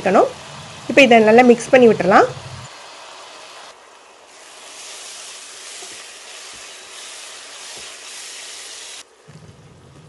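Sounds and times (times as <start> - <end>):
onions sizzling in hot oil: 2.6 - 3.7, 4.3 - 9.0.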